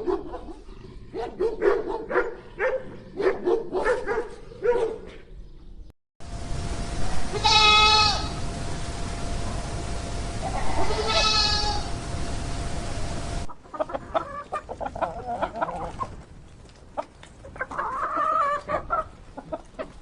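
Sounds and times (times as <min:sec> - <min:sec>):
chickens clucking: 0:13.4 - 0:20.0.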